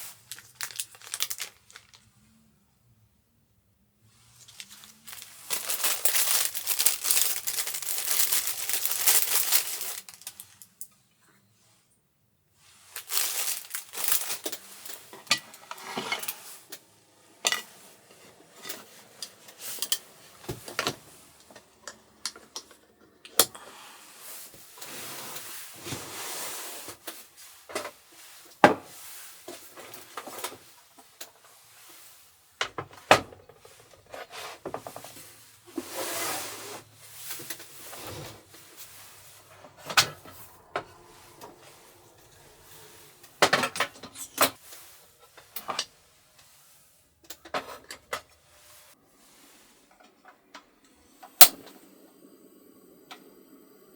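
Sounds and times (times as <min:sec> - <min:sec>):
dishes rubbing and scraping: 0:14.0 - 0:16.8.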